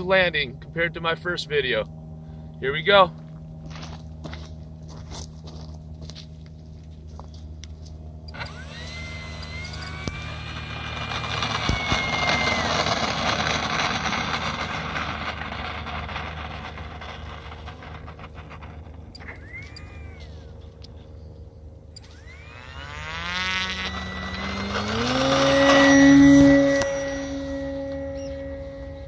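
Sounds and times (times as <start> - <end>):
propeller rushing noise: 0.0 - 29.0
electric motor whine: 6.0 - 29.0.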